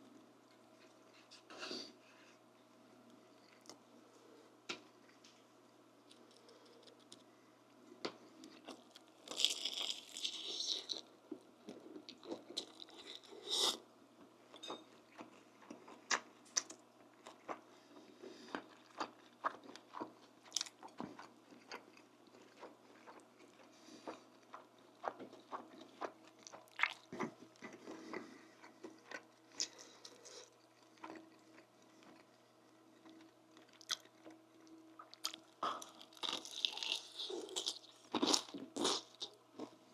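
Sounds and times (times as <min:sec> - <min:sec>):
person chewing crunchy food: 0:08.4 - 0:13.8, 0:14.5 - 0:39.8.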